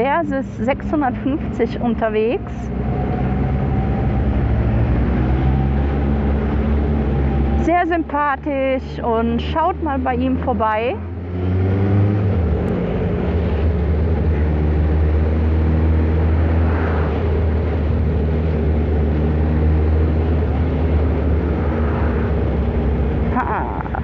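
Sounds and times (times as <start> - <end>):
motorcycle engine cruising: 0.0 - 24.0
wind rushing over microphone: 11.2 - 23.4.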